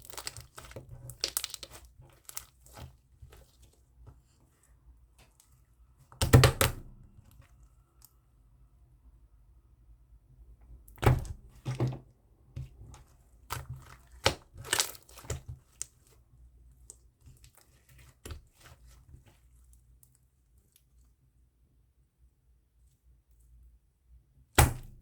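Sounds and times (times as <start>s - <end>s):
slime popping and crackling: 0.0s - 3.5s, 13.5s - 16.0s.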